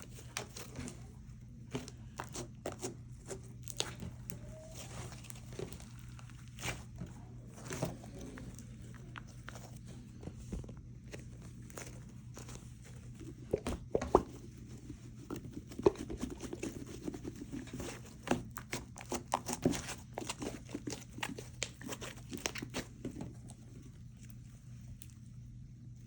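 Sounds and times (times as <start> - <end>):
slime squishing by hand: 0.0 - 26.0.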